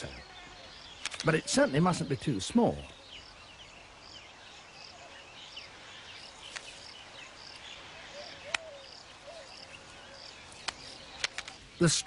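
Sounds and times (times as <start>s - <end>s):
birds chirping sweeping notes: 0.0s - 12.0s
sharp clicks: 1.0s - 1.4s, 8.4s - 8.7s, 10.6s - 11.6s.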